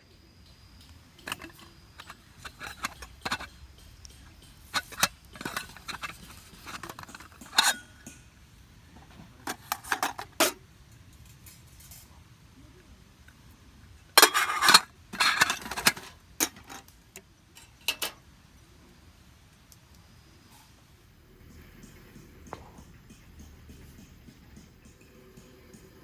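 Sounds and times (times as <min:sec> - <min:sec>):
metal cookware clinking: 0:01.2 - 0:08.3, 0:09.4 - 0:10.6, 0:14.2 - 0:16.9, 0:17.6 - 0:18.2.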